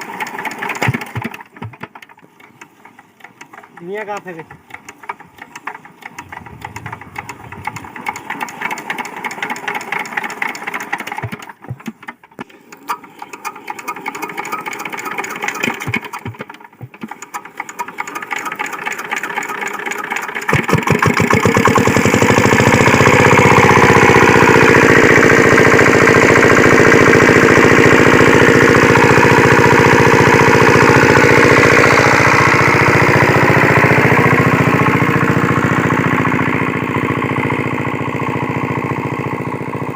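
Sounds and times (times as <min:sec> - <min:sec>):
diesel engine cranking by hand: 0:00.0 - 0:39.9
diesel engine running steady: 0:00.0 - 0:39.9.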